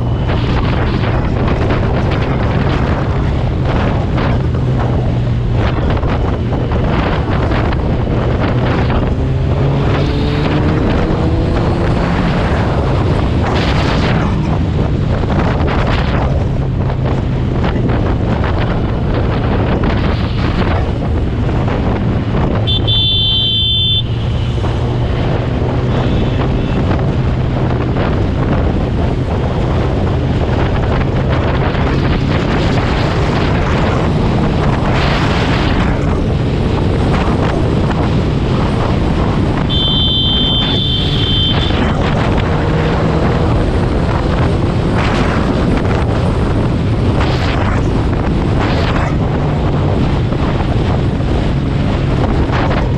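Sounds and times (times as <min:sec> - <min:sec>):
wind buffeting on microphone: 0:00.0 - 0:52.9
high-pitched vehicle horn: 0:22.6 - 0:24.6, 0:25.9 - 0:26.8, 0:39.6 - 0:41.9.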